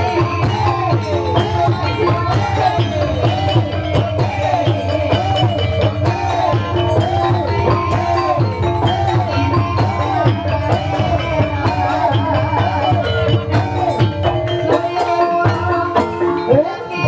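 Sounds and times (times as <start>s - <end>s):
drum-led gamelan music: 0.0s - 17.0s.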